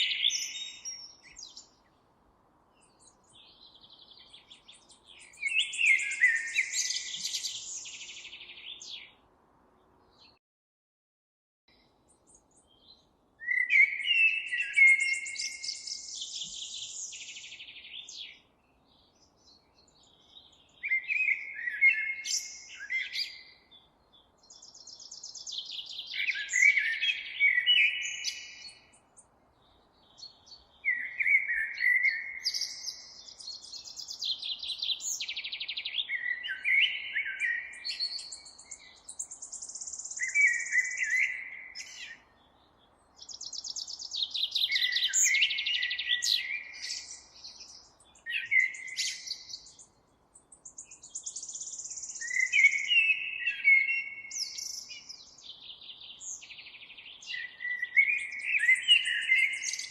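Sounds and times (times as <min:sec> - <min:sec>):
songbird chirping and trilling: 0:00.0 - 0:10.4, 0:11.7 - 0:59.9.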